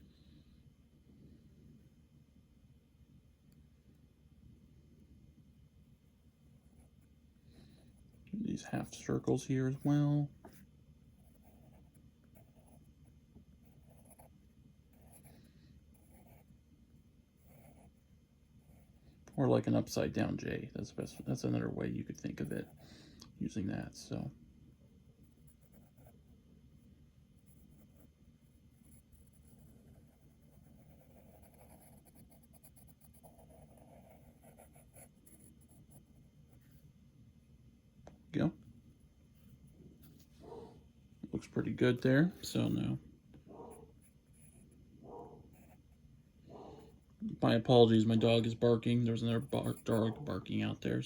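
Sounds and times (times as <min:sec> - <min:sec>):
drawing tool scratching on paper: 0:09.7 - 0:16.5, 0:27.4 - 0:36.8.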